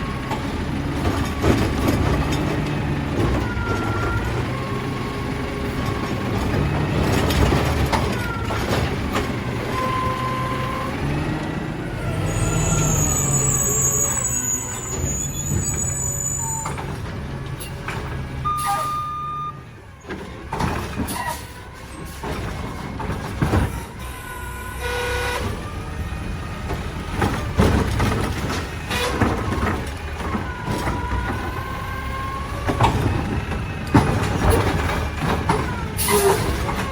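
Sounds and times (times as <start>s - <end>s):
garbage truck engine running: 0.0s - 36.9s
high squeal: 12.1s - 16.8s
short beeps: 18.5s - 19.6s.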